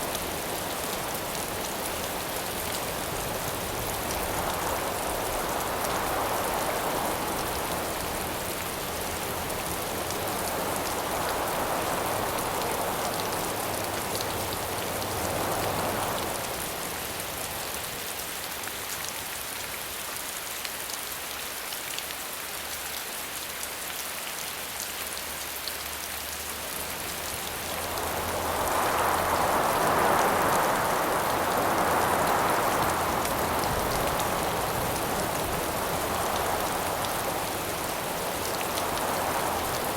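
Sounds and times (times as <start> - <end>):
gusting wind: 0.0 - 18.0, 26.5 - 39.9
steady rain falling: 0.0 - 39.9.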